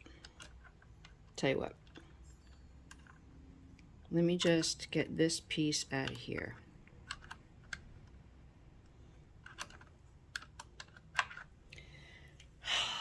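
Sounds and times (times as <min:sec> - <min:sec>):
sewing machine parts clicking: 0:00.0 - 0:03.3, 0:09.4 - 0:11.5.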